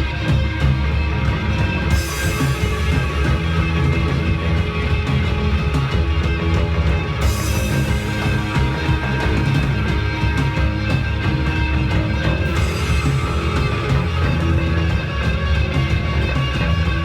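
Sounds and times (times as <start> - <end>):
rock band playing instrumental: 0.0 - 17.0.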